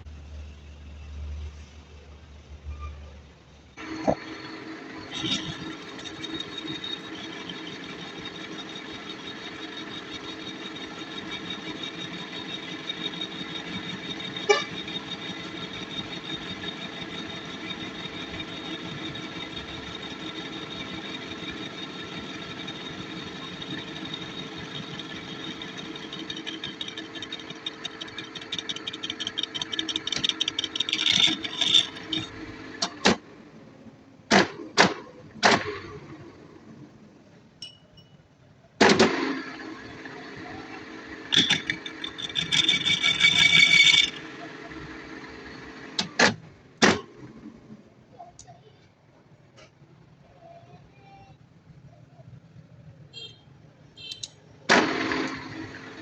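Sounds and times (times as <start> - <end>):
workshop machinery humming and rattling: 3.8 - 37.1, 38.8 - 47.8, 54.7 - 56.0.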